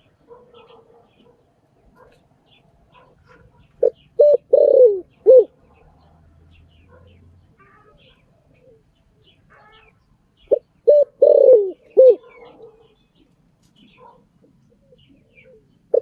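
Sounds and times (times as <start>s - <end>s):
dove cooing: 3.0s - 5.7s, 9.5s - 13.0s, 13.9s - 16.0s.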